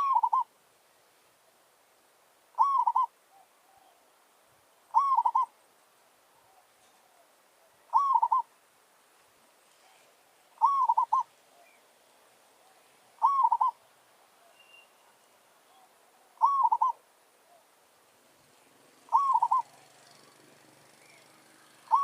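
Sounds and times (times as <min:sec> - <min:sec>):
dove cooing: 0:00.0 - 0:00.5, 0:02.6 - 0:04.0, 0:04.9 - 0:05.6, 0:06.4 - 0:08.5, 0:10.6 - 0:11.8, 0:12.6 - 0:13.8, 0:15.7 - 0:17.7, 0:18.9 - 0:22.0.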